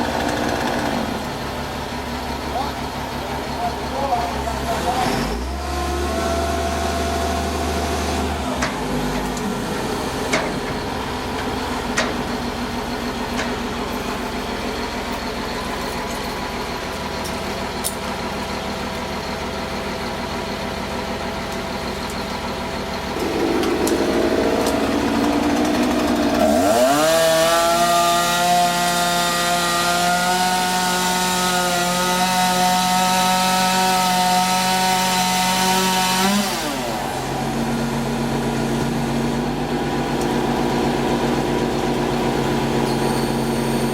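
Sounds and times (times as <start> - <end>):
chainsaw idling and revving: 0.0 - 1.6, 4.4 - 10.2, 23.1 - 43.9.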